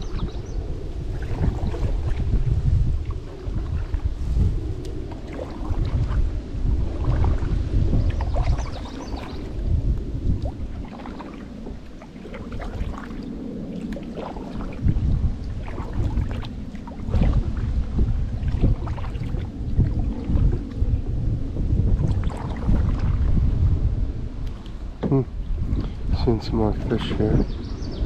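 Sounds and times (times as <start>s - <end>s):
paddle splashing and dripping: 0.0s - 4.1s, 4.8s - 21.1s, 21.8s - 23.4s
wind buffeting microphone: 0.0s - 28.0s.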